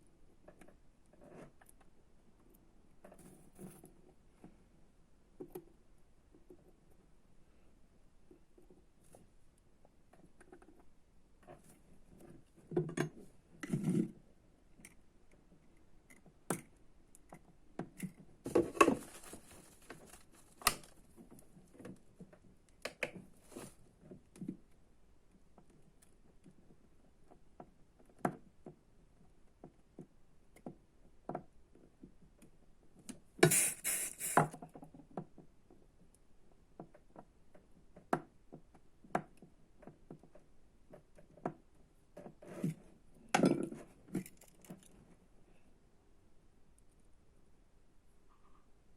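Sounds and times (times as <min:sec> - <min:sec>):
rustling and scraping: 0:03.0 - 0:04.6, 0:10.2 - 0:14.3, 0:18.0 - 0:22.5, 0:23.3 - 0:24.2, 0:42.2 - 0:43.0.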